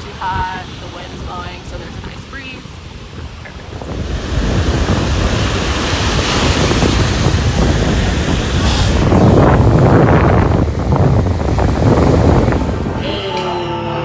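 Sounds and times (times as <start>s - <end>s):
wind buffeting microphone: 0.0s - 13.2s
ocean surf: 0.0s - 14.0s.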